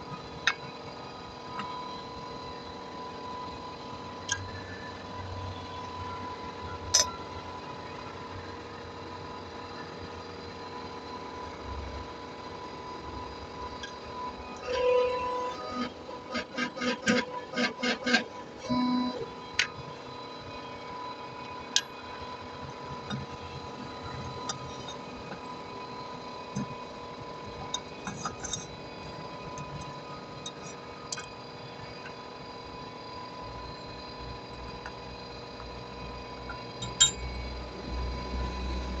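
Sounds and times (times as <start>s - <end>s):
faint steady whine: 0.0s - 39.0s
light metallic clicks and clinks: 36.5s - 37.4s.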